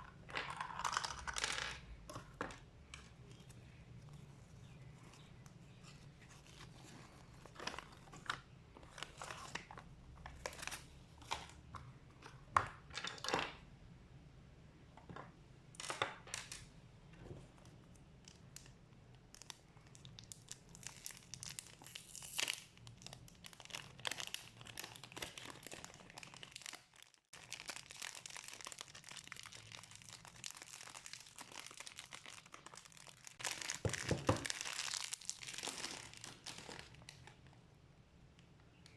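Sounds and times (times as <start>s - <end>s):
plastic wrapping crinkling and tearing: 18.2s - 37.4s.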